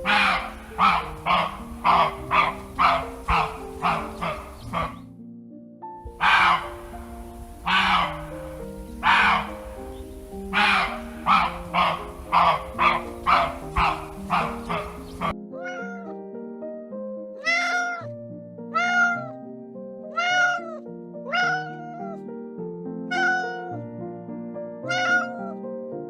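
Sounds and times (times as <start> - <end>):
cat meowing: 0.0 - 5.0, 6.2 - 16.2, 17.4 - 18.1, 18.7 - 19.4, 20.1 - 22.2, 23.1 - 23.8, 24.9 - 25.6
harsh animal calls: 0.0 - 5.1, 6.1 - 16.1, 17.4 - 18.1, 18.8 - 19.3, 20.2 - 22.1, 23.1 - 23.8, 24.9 - 25.5
background music: 0.0 - 26.0.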